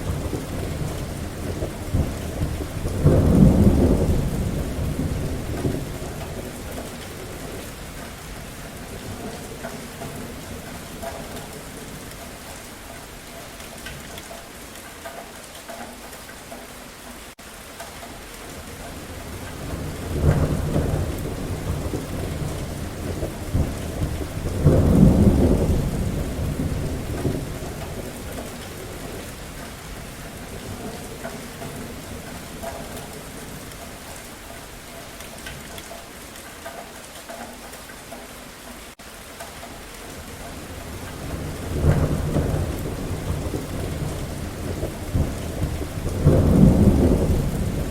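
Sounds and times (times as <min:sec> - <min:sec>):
rolling thunder: 0:00.0 - 0:12.1, 0:19.0 - 0:34.0, 0:40.2 - 0:47.9
steady rain falling: 0:00.0 - 0:47.9.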